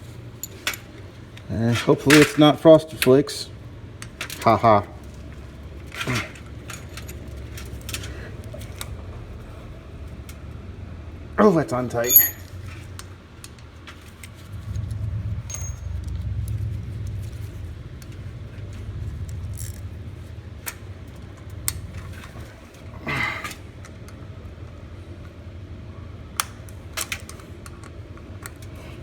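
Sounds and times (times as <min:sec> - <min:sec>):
metal tools clinking: 0:00.4 - 0:01.0, 0:05.9 - 0:08.1, 0:11.9 - 0:12.8, 0:15.5 - 0:16.1
low handling rumble: 0:14.1 - 0:22.6.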